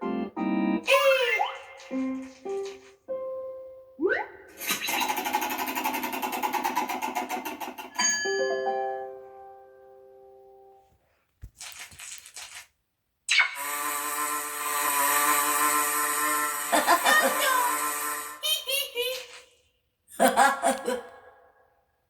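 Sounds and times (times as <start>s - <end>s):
cartoon music: 4.0s - 5.0s
fast rattling whir: 4.7s - 7.9s.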